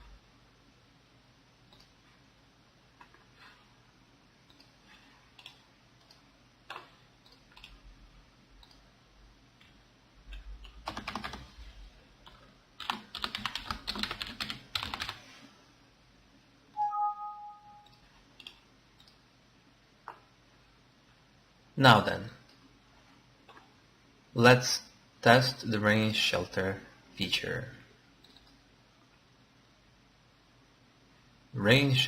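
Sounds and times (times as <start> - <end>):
computer keyboard typing: 4.5 - 7.8, 9.6 - 11.5, 12.2 - 15.2, 17.8 - 19.2, 28.2 - 28.6
short electronic beep: 16.8 - 17.8.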